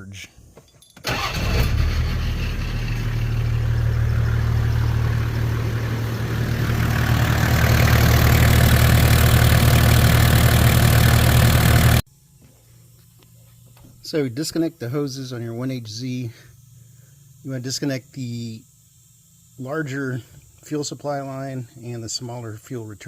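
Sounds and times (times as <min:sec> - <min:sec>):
diesel engine idling: 0:01.1 - 0:12.0.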